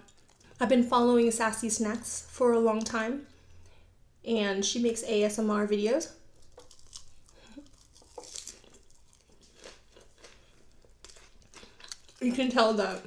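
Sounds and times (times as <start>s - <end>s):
chewing crispy fried chicken: 6.4s - 13.0s.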